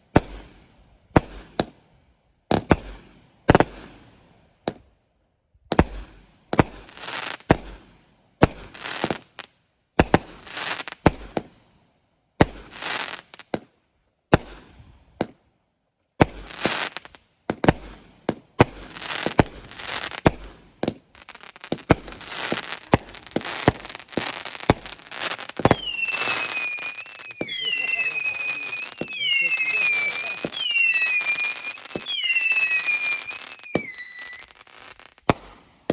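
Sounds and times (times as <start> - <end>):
fireworks crackling: 8.4 - 9.4, 12.4 - 13.7, 16.2 - 35.9
fireworks banging: 16.2 - 35.9.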